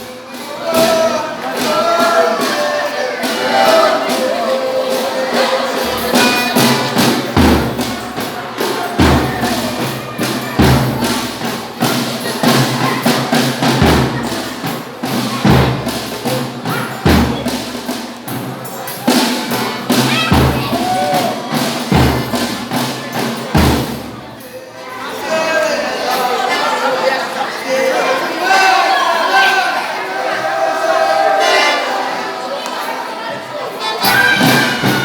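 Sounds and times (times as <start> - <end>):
jingling percussion: 0.3 - 26.5, 32.8 - 35.0
deep drum beats: 0.7 - 18.6, 19.5 - 24.4, 34.1 - 35.0.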